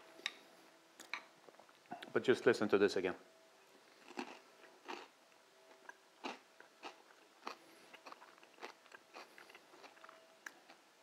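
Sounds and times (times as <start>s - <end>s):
crunching pork crackling: 4.0s - 5.2s, 5.8s - 10.8s.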